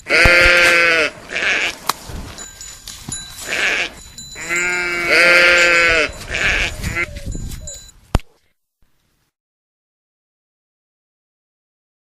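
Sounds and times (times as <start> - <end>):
sheep bleating: 0.0 - 1.8, 3.4 - 7.2.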